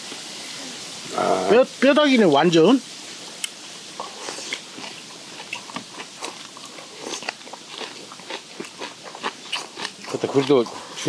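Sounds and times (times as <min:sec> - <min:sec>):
people chewing: 0:03.4 - 0:11.0
crunching cartilage: 0:04.1 - 0:10.8.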